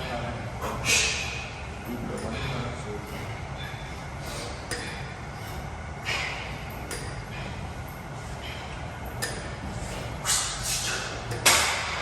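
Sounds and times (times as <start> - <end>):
low room rumble: 0.0 - 12.0
metal weights clanking: 9.1 - 12.0.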